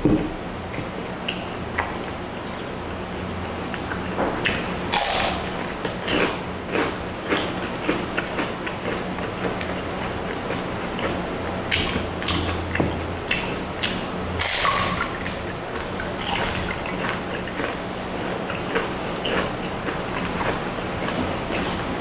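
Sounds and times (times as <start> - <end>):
wet chewing and lip-smacking: 3.8 - 21.8
crunchy bite: 4.5 - 9.0, 14.4 - 17.8.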